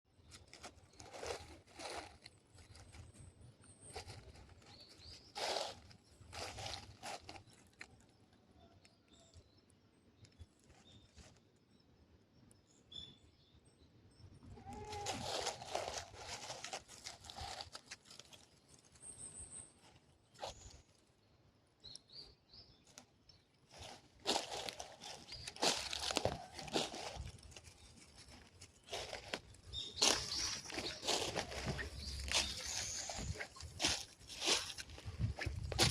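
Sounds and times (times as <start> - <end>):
footsteps crunching on a trail: 0.2 - 8.0, 14.6 - 20.9, 23.7 - 35.9
short high bird chirps: 29.7 - 33.8.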